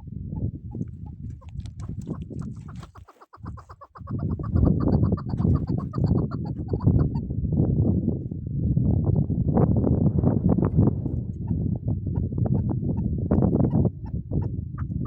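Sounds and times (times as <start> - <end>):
partridge chuck calls: 0.7 - 7.2.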